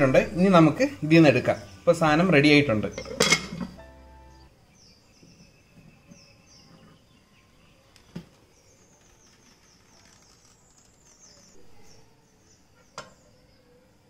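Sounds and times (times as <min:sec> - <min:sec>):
faint bird chirping: 0:00.0 - 0:14.0.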